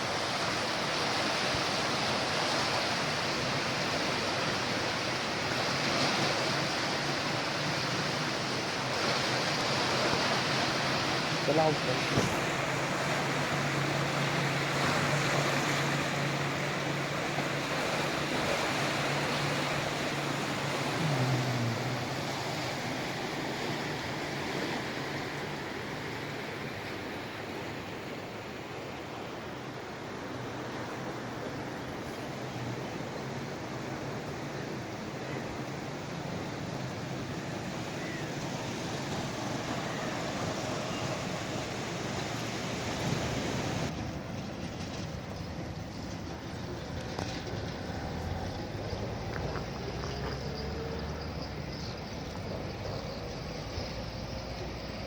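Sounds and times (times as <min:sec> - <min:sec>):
locomotive engine drone: 0:00.0 - 0:55.0
rushing train noise: 0:30.0 - 0:55.0.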